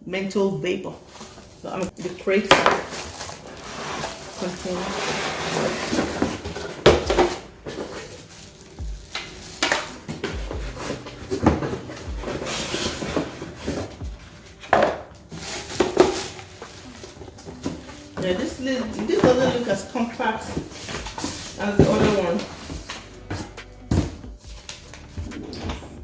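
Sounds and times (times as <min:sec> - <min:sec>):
packaging rustling: 0:01.0 - 0:25.4.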